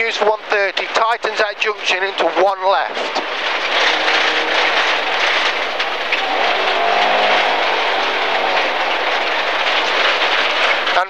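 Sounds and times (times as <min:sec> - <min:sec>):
tyre and stone noise: 0:03.0 - 0:11.0
car engine pulling at speed: 0:03.1 - 0:11.0.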